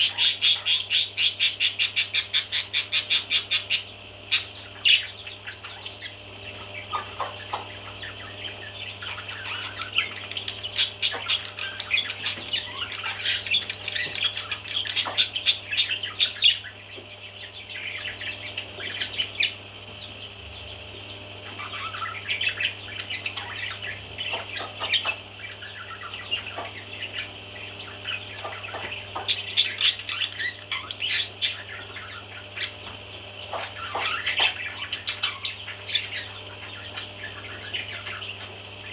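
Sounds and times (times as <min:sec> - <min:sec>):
parrots chirping and squawking: 0:00.0 - 0:38.9
steady low hum: 0:00.0 - 0:38.9.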